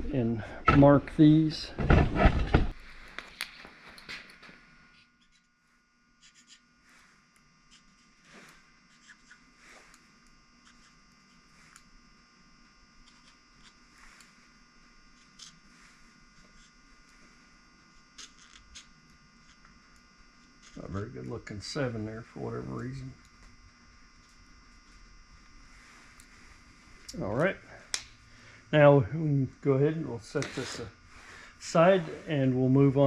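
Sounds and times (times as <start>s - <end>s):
faint electrical hum: 0.0s - 33.0s.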